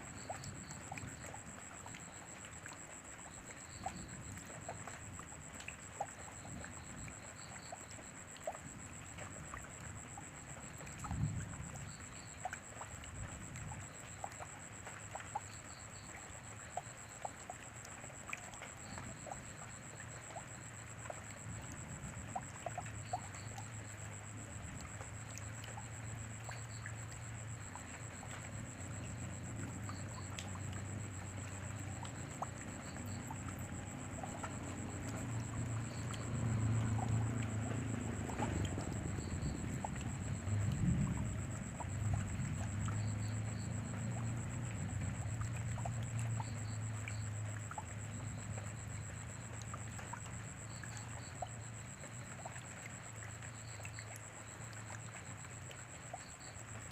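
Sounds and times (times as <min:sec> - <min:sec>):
rain falling: 0:16.1 - 0:47.9.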